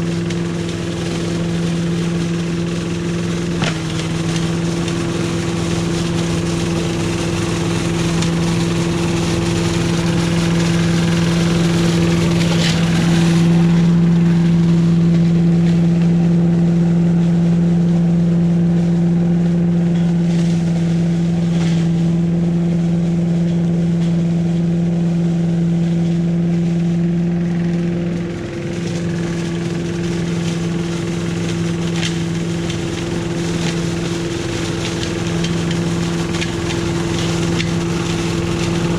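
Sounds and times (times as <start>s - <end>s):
leaf vacuum engine droning: 0.0s - 38.9s.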